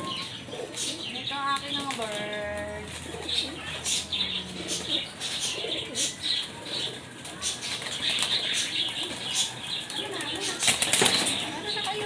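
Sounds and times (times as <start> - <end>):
pigeons cooing: 0.0 - 12.0
wings flapping: 6.4 - 12.0.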